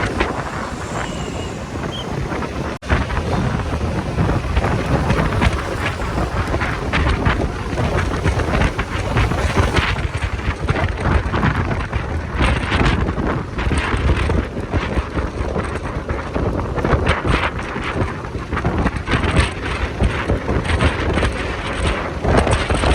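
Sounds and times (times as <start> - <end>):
motorcycle engine: 0.0 - 22.9
road noise: 0.0 - 22.9
wind buffeting microphone: 0.0 - 22.9.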